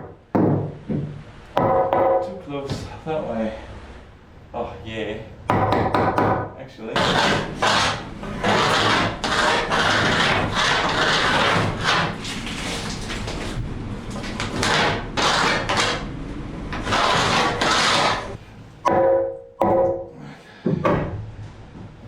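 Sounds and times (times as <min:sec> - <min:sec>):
scraping strokes on wood: 0:06.9 - 0:16.1, 0:16.7 - 0:18.4.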